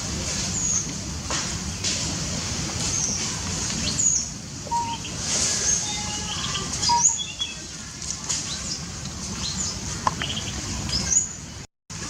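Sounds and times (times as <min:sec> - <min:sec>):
birds chirping: 0:02.8 - 0:11.6.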